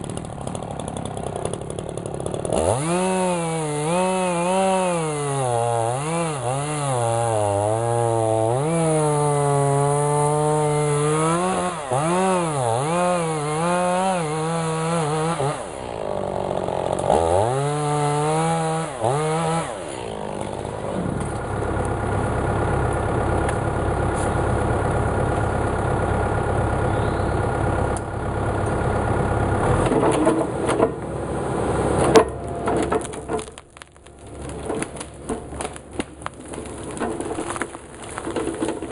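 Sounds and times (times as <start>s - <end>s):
chainsaw cutting at high revs: 0.0s - 23.1s.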